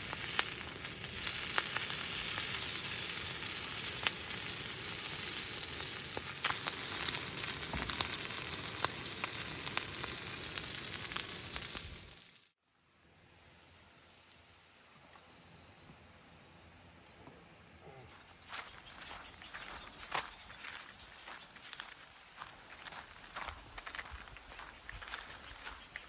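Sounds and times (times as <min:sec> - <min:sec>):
fire pops and snaps: 0:00.0 - 0:12.5
campfire hissing: 0:00.0 - 0:12.6.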